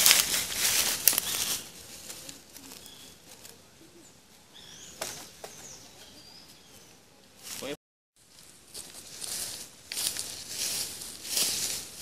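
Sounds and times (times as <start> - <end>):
footsteps crunching dry leaves: 0.0 - 3.6, 7.4 - 12.0.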